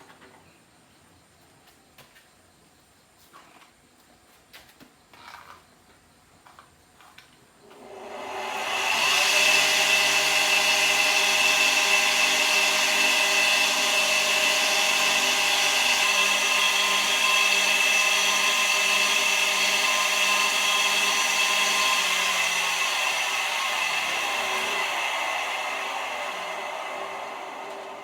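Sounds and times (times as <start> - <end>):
power tool motor running: 7.7 - 28.0.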